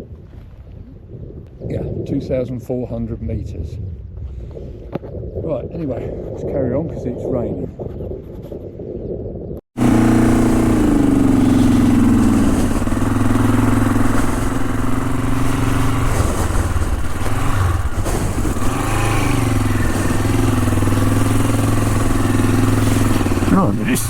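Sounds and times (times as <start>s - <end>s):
motorcycle engine running: 9.8s - 24.0s.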